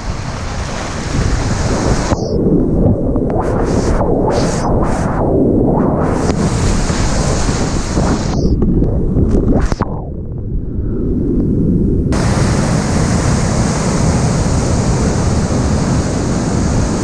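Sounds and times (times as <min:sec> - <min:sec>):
splashing spray: 0:00.0 - 0:02.5
wind buffeting microphone: 0:00.0 - 0:17.0.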